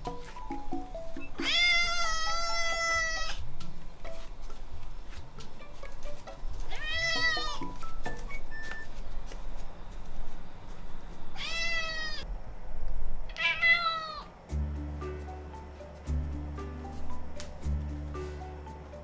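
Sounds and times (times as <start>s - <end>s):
cat meowing: 1.4s - 3.4s, 11.4s - 12.2s, 13.3s - 14.3s.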